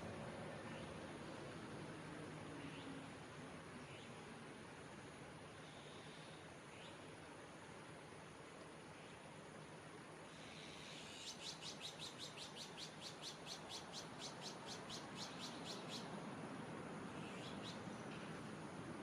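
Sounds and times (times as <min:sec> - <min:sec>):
kingfisher calling: 0:11.1 - 0:16.1.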